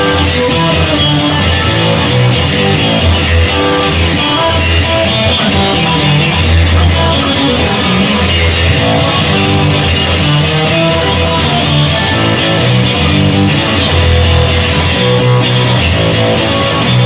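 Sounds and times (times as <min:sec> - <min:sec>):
rock band instrumental: 0:00.0 - 0:17.0.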